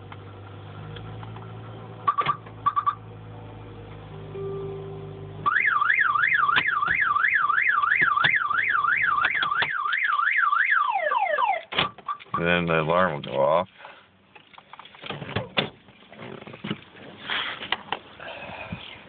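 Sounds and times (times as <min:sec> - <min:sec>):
car alarm siren wailing: 0:02.1 - 0:03.0, 0:05.4 - 0:12.2.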